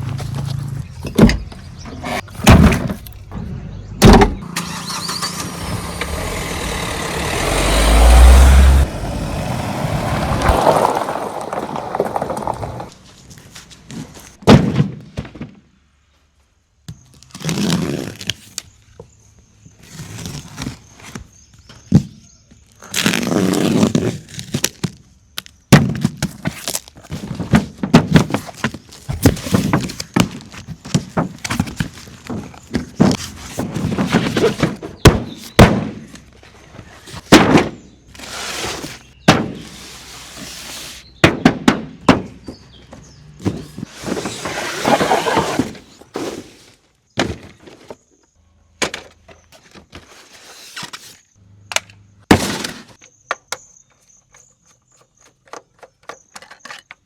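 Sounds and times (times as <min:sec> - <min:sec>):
soil scraping and pouring: 0:09.8 - 0:14.2, 0:38.1 - 0:41.1, 0:43.8 - 0:46.8
plastic toys clattering: 0:10.4 - 0:13.0, 0:52.5 - 0:57.0.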